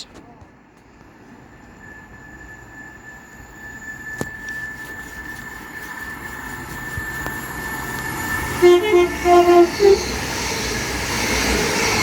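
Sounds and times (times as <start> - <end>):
train rumbling: 0.0 - 12.0
two-tone train horn: 6.9 - 10.8.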